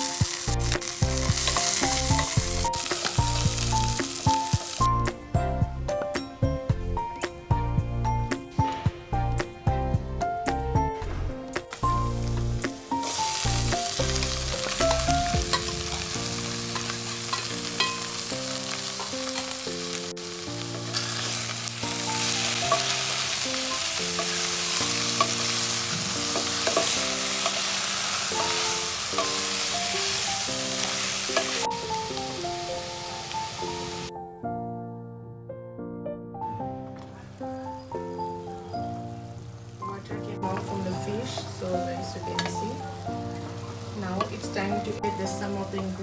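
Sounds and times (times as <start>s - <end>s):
fish sizzling in a pot: 0.0s - 5.1s, 11.7s - 34.1s, 37.2s - 46.0s
background music: 0.0s - 46.0s.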